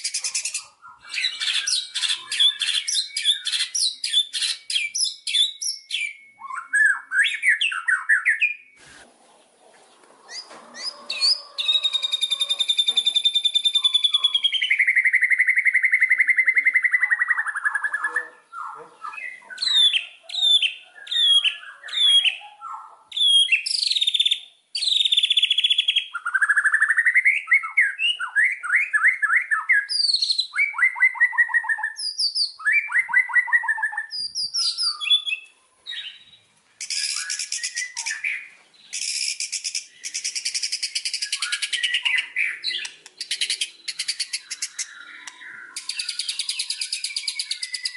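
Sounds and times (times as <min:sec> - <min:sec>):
bird harsh chatter: 0:00.0 - 0:05.5, 0:08.8 - 0:24.0, 0:36.8 - 0:47.9
songbird whistling and trilling: 0:00.0 - 0:08.8, 0:10.3 - 0:47.9.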